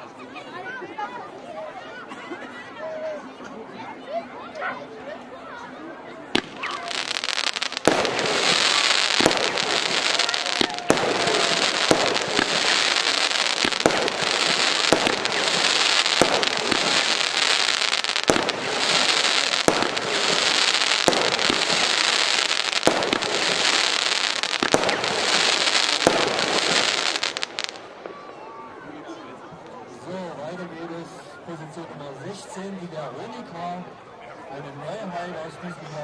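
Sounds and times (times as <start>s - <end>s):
firework shots: 6.3s - 28.3s
firework crackling hiss: 6.4s - 28.1s.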